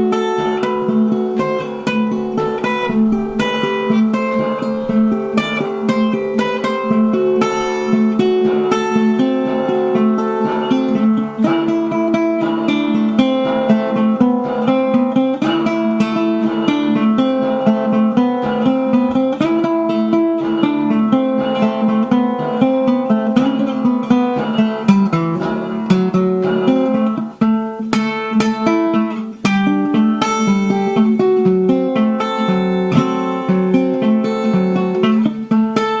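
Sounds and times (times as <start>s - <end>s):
acoustic guitar plucked and strummed: 0.0s - 36.0s.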